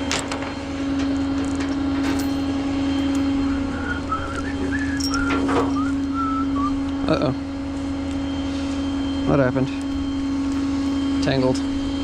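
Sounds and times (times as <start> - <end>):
vehicle engine humming: 0.0 - 12.0
wavering whistled notes: 2.9 - 7.1.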